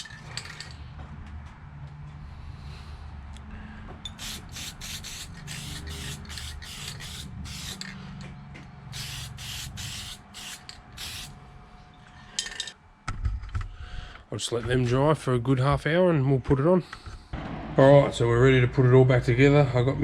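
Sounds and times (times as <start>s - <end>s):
aerosol spray can hissing: 4.1s - 7.8s, 9.0s - 11.4s
steady low hum: 16.8s - 20.0s.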